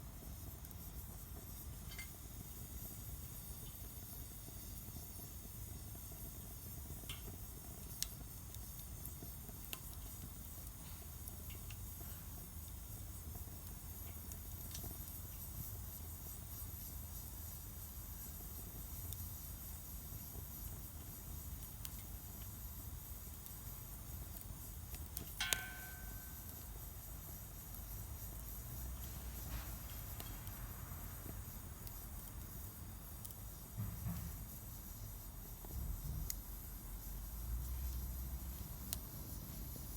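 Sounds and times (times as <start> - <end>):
fire crackles: 0.0 - 39.9
wood fire burning: 0.0 - 39.9
wood fire rumbling: 27.6 - 39.9.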